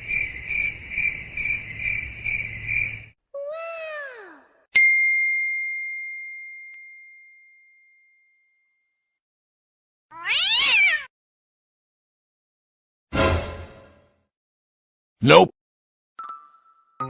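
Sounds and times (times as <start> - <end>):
bell ding: 4.8 - 8.8
cat meow: 10.1 - 11.1.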